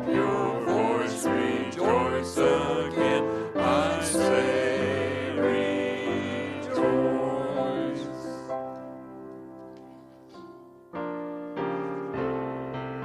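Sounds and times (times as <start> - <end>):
group singing worship song: 0.0 - 8.8
instrumental accompaniment: 0.0 - 13.0.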